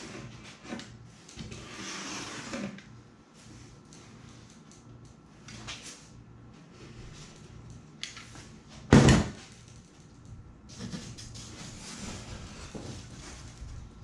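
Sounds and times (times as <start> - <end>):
foam rubbing and scraping: 1.5 - 2.8, 10.7 - 14.0.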